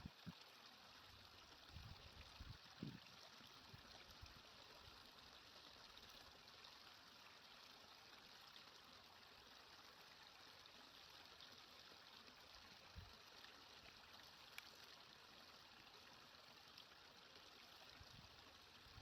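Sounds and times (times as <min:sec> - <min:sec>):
flowing stream: 0:00.0 - 0:19.0.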